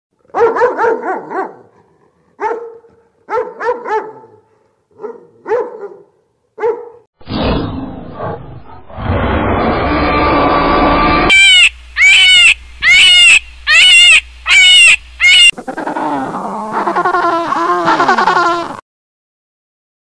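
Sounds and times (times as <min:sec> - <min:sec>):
dog barking: 0:00.3 - 0:07.1
loud dense rumble: 0:07.3 - 0:15.5.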